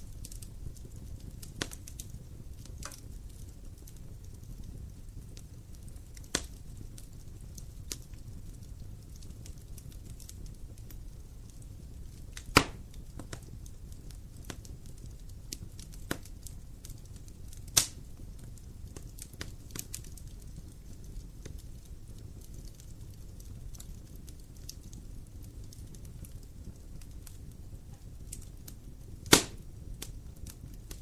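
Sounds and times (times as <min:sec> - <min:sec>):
loud pops from burning logs: 0:00.0 - 0:31.0
wood fire crackling: 0:00.0 - 0:31.0.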